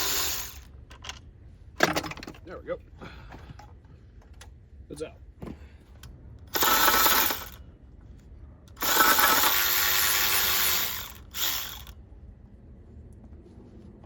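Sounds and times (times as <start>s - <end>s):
electric ratchet spinning bolts: 0.0s - 0.7s, 6.5s - 7.6s, 8.7s - 12.0s.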